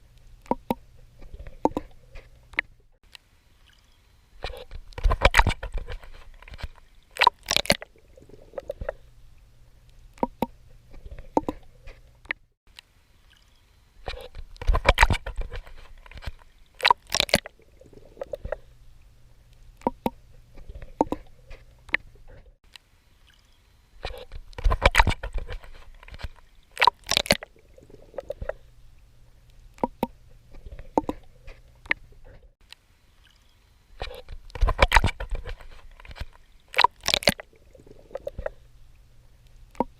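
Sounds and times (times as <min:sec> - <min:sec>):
water gurgling: 0:04.4 - 0:12.0, 0:14.0 - 0:39.9
swimming strokes splashing: 0:13.3 - 0:18.8, 0:23.2 - 0:28.7, 0:33.2 - 0:38.6.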